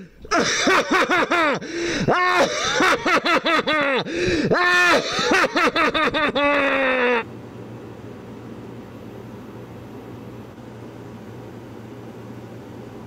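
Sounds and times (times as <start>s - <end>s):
low steady hum: 0.0s - 13.0s
maniacal laugh: 0.2s - 7.2s.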